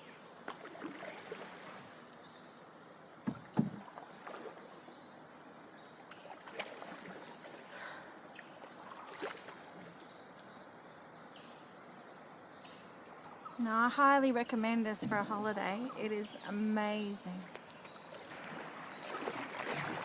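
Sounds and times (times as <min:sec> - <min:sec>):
paddle strokes in water: 0:00.0 - 0:02.4, 0:03.2 - 0:10.7, 0:17.5 - 0:20.0.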